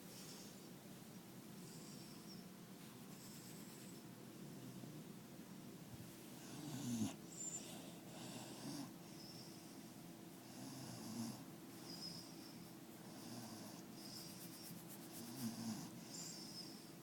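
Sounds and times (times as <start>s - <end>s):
dog snoring: 6.4s - 9.8s, 10.4s - 14.5s, 15.2s - 16.8s.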